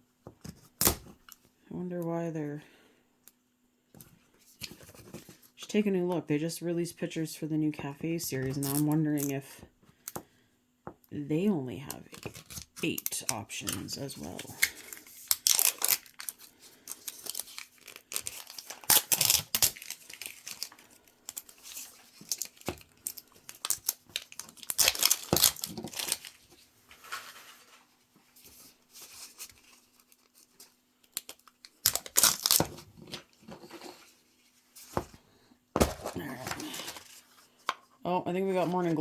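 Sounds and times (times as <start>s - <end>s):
plastic packaging tearing and crinkling: 12.1s - 27.7s, 28.9s - 34.0s.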